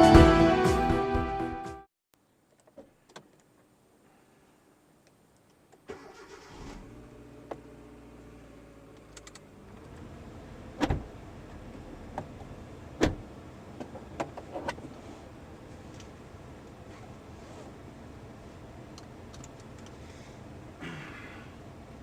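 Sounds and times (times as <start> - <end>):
car engine starting and running: 5.8 - 20.8.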